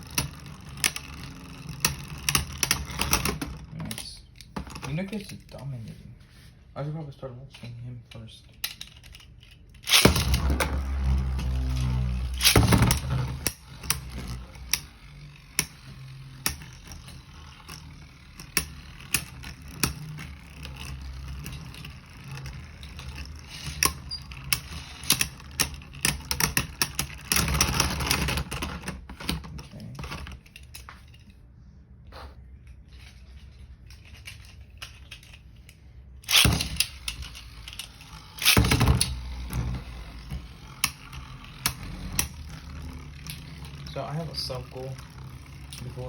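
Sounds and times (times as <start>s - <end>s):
spinning tops clashing: 36.3s - 46.0s.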